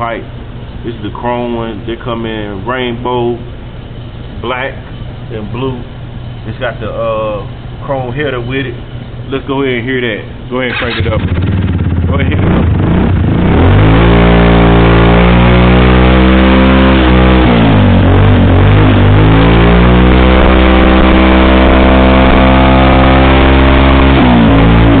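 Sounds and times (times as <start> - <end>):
scooter engine revving: 10.7 - 25.0.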